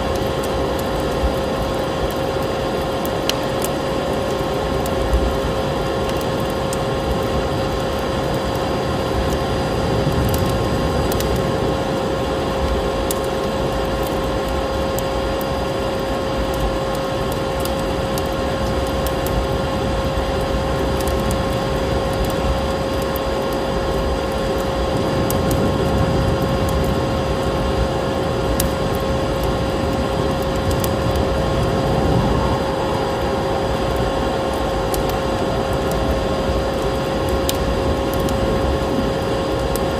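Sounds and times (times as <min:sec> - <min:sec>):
wood fire crackling: 0:00.0 - 0:39.9
vacuum cleaner running: 0:29.9 - 0:39.0.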